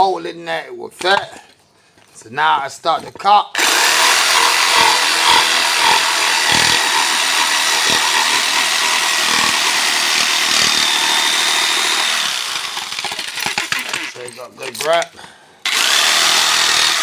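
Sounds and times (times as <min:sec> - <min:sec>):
jigsaw cutting wood: 0:03.6 - 0:14.3, 0:15.6 - 0:17.0.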